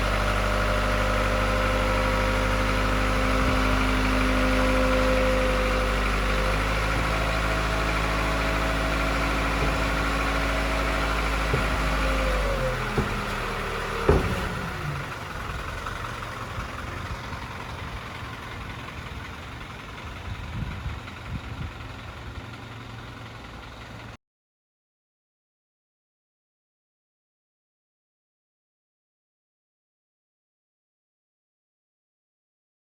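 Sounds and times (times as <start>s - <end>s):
diesel truck engine idling: 0.0s - 24.2s
small knocks: 6.6s - 15.0s
sharp clunk: 9.0s - 15.0s.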